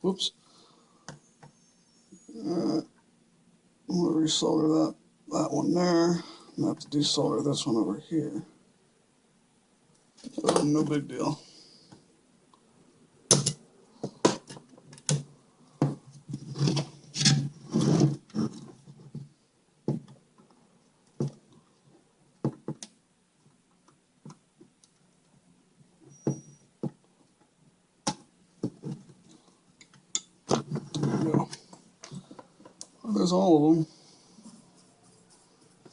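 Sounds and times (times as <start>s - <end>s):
tools clicking and tapping: 13.3s - 15.2s.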